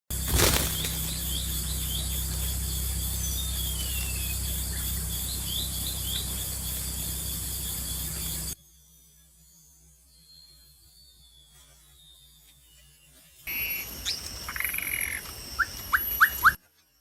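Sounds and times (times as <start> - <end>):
electrical hum and hiss: 0.2 - 8.6.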